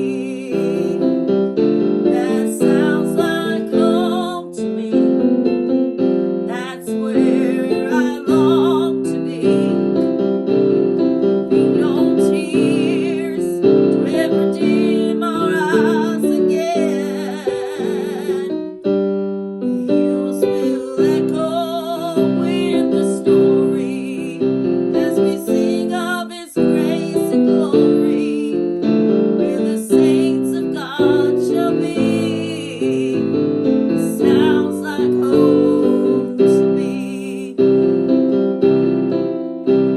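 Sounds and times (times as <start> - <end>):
piano music: 0.0 - 39.9.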